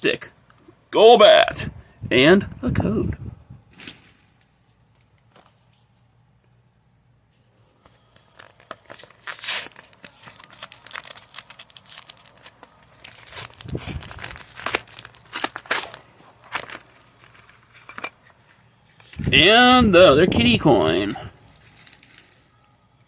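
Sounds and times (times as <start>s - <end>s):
packaging being torn and crumpled: 8.1s - 18.0s, 21.5s - 22.4s.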